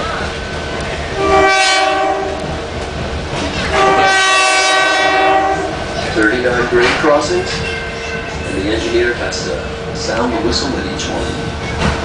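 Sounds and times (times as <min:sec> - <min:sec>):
train cars rumbling on rails: 0:00.0 - 0:12.0
train horn blasts: 0:01.2 - 0:02.5, 0:03.7 - 0:05.8.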